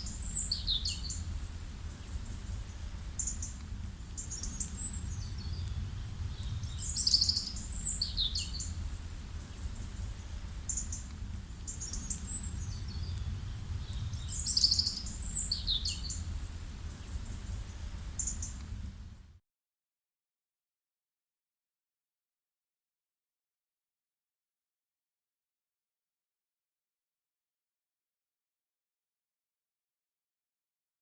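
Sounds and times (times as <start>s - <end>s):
songbird singing: 0.0s - 19.2s
steady low rumble: 0.0s - 19.4s.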